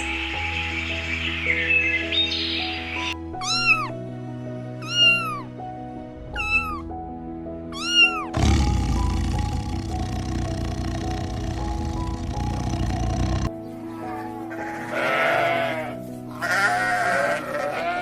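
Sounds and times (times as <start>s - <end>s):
background music: 0.0s - 18.0s
cat meowing: 3.4s - 3.9s, 4.8s - 5.5s, 6.3s - 6.9s, 7.7s - 8.3s.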